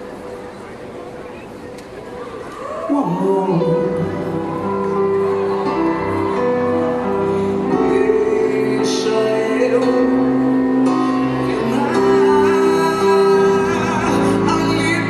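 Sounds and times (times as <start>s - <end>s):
person singing: 2.9s - 15.0s
live band playing slow song: 3.1s - 15.0s.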